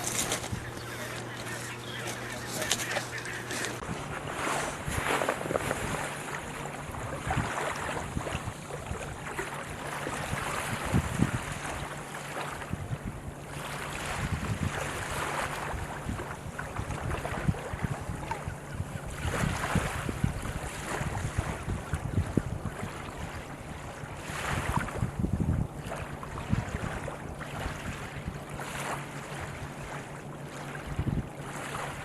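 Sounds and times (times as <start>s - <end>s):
surf washing in: 0.0s - 18.5s, 19.1s - 32.0s
wind buffeting microphone: 0.0s - 30.0s, 30.8s - 32.0s.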